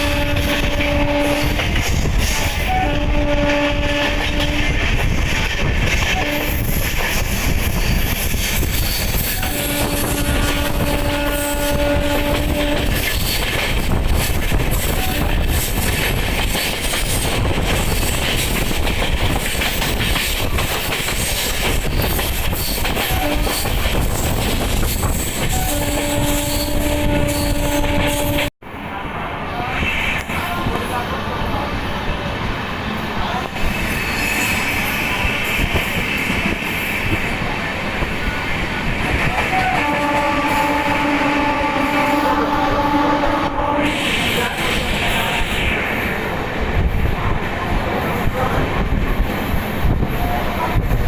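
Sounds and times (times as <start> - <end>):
train horn: 0.0 - 1.8, 2.5 - 4.8, 6.1 - 6.8, 9.3 - 13.1, 14.9 - 15.6, 23.0 - 23.8, 25.4 - 28.5, 39.4 - 44.2
train wheels rumbling on rails: 0.0 - 51.0.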